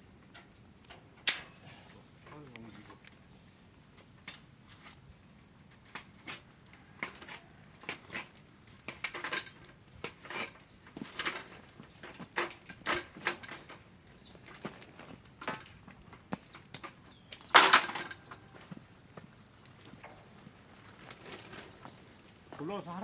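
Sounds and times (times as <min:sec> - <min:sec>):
metallic clinks on steel pipe: 0:01.2 - 0:01.8.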